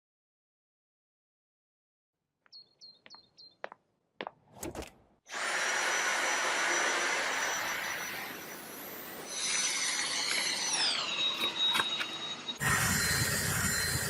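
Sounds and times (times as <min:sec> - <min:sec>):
vacuum motor whining: 0:05.3 - 0:14.0.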